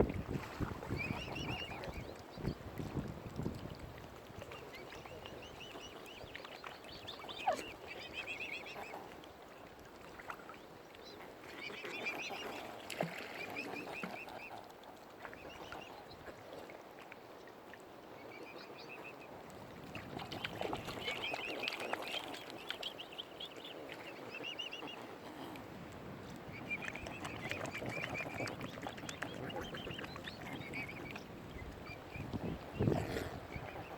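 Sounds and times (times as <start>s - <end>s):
waterfowl calling: 26.5s - 33.9s.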